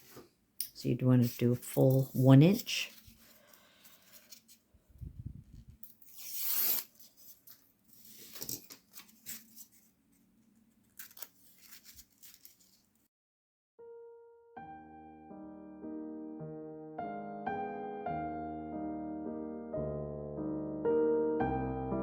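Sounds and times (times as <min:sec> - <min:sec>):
paper tearing: 0:06.0 - 0:09.8, 0:10.9 - 0:12.9.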